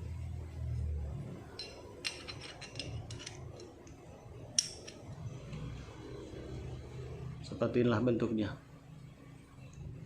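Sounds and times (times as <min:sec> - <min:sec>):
small metal parts clinking: 0:01.6 - 0:04.0, 0:04.6 - 0:05.1.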